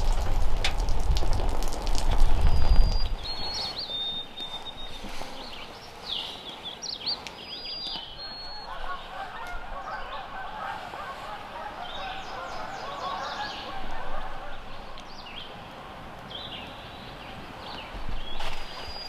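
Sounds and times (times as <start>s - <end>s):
songbird chirps: 1.9s - 19.0s
geese honking: 7.8s - 15.0s.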